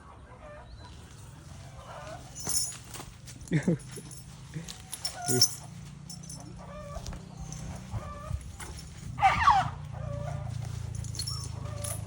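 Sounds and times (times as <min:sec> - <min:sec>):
animal squeaky calls: 0:09.2 - 0:10.4.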